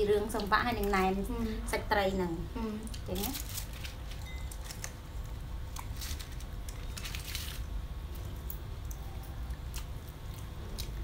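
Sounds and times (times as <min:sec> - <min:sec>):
steady low hum: 0:00.0 - 0:11.0
chewing leafy wraps: 0:02.6 - 0:11.0
crisp crunches: 0:02.9 - 0:11.0.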